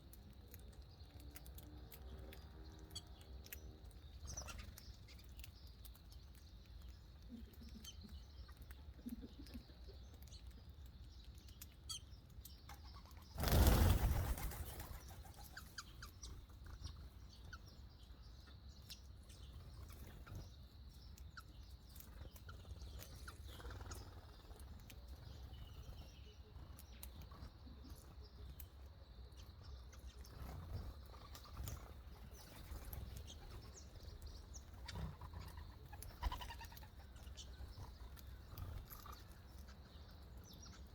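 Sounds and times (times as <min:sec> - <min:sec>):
small birds chirping: 0:00.0 - 0:40.9
wings flapping: 0:13.4 - 0:15.6.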